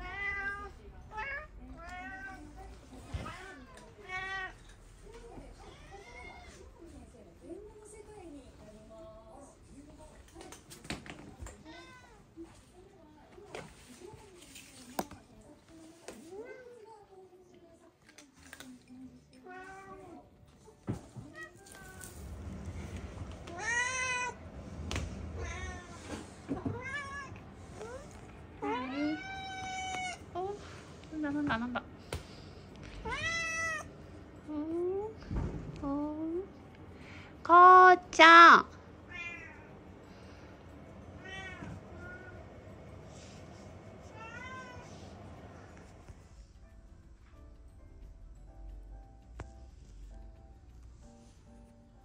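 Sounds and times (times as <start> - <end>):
cat meowing: 28.7 - 30.3, 33.0 - 33.9.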